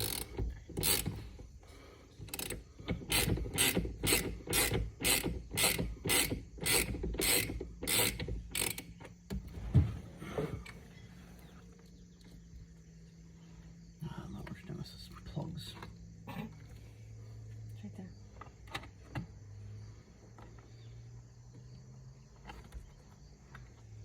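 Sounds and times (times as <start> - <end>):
ratchet wrench clicking: 0.0 - 1.4, 2.2 - 9.1
dull thump: 9.3 - 10.7.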